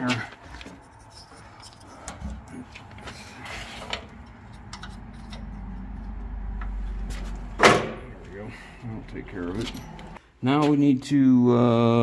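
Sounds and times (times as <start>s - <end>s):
hand tools clicking and knocking: 0.1s - 6.8s.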